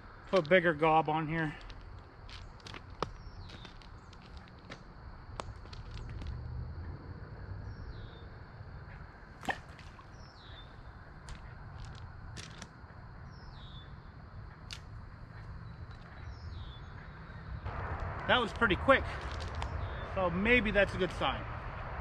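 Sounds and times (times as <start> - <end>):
fishing gear clicks: 11.2 - 12.8
low rumble: 16.8 - 22.0.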